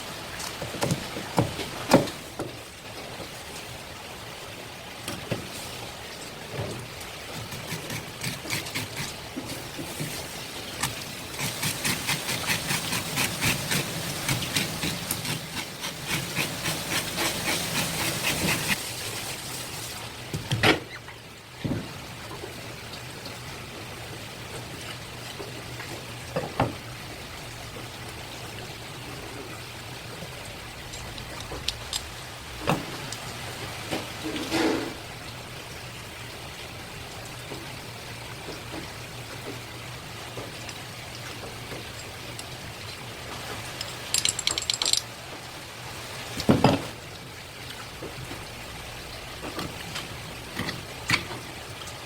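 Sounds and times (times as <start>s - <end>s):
knife scraping fish: 7.5s - 9.2s, 10.8s - 18.8s.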